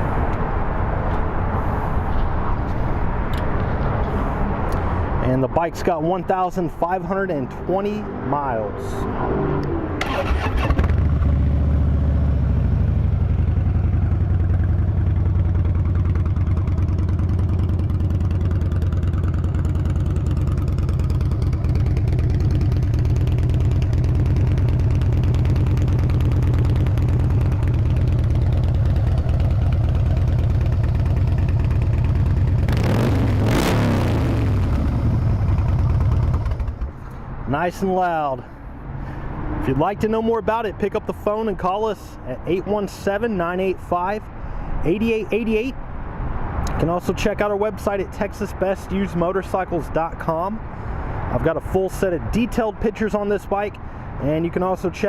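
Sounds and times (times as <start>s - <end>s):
motorcycle engine revving: 9.0s - 37.1s
motorcycle engine idling: 10.0s - 32.8s, 34.5s - 37.2s.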